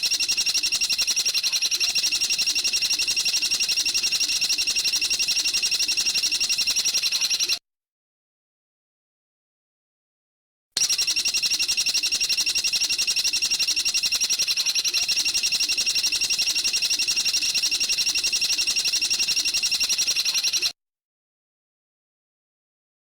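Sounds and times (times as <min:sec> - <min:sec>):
bird's rapid high trill: 0:00.0 - 0:07.6, 0:10.8 - 0:20.8.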